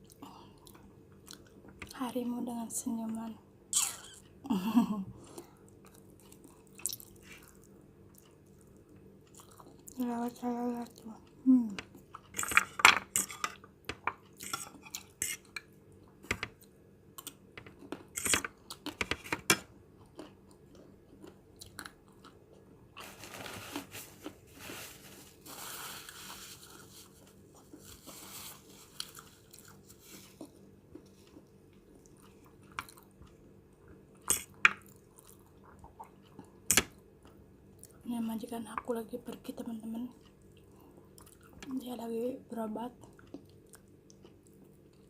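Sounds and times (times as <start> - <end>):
person chewing and crunching: 5.4 - 10.0, 14.2 - 19.0, 19.9 - 23.1, 26.0 - 38.0, 40.2 - 41.6, 43.0 - 45.0.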